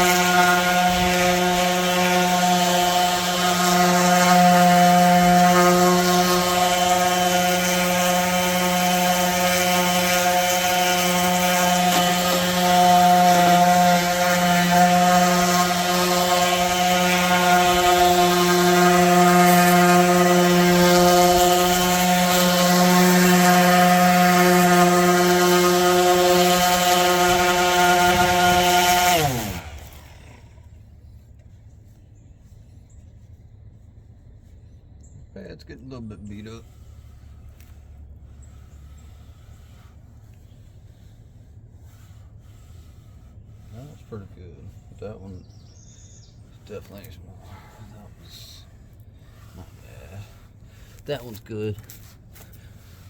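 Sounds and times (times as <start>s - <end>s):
electric sander on wood: 0.0s - 31.5s, 36.0s - 45.4s.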